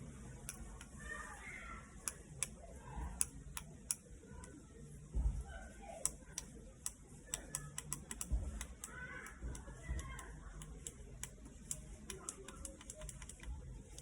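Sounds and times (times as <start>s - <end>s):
small parts clicking and tapping: 0.4s - 1.0s, 6.0s - 14.0s.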